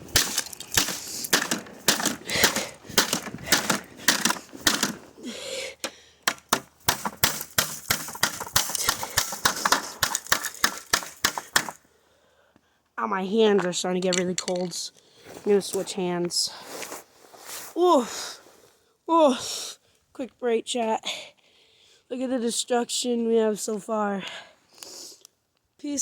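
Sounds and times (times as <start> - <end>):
hard plastic being smashed: 0.0 - 5.2, 5.8 - 11.8.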